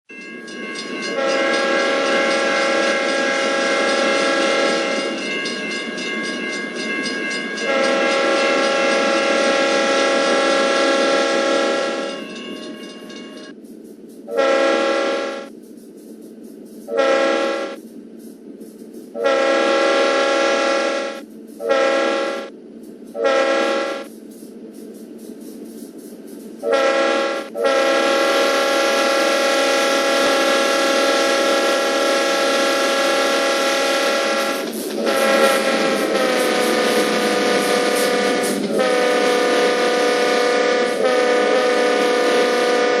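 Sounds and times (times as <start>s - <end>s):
locomotive air horn blasts: 1.1s - 5.0s, 7.6s - 12.2s, 14.3s - 15.5s, 16.9s - 17.8s, 19.2s - 22.5s, 23.1s - 24.1s, 26.6s - 43.0s.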